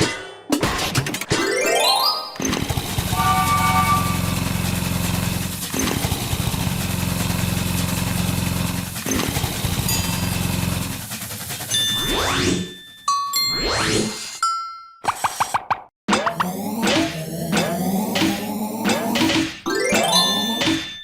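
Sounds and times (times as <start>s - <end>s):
engine running with fast pulse: 2.4s - 12.3s.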